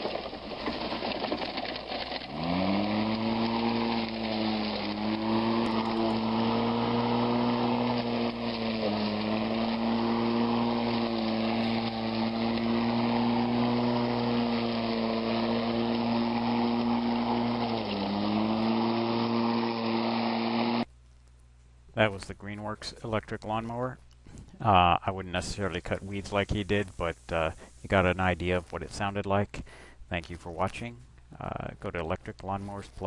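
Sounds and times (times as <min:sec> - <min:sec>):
electric lawn mower running: 0:00.0 - 0:20.9.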